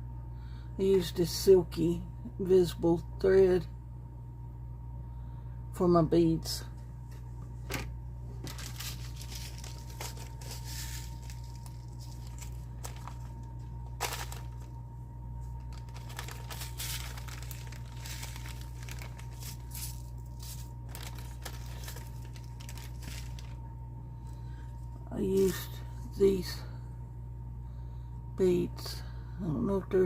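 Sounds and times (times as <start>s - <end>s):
steady low hum: 0.0s - 30.0s
plastic packaging crinkling: 8.4s - 14.8s, 15.4s - 23.6s.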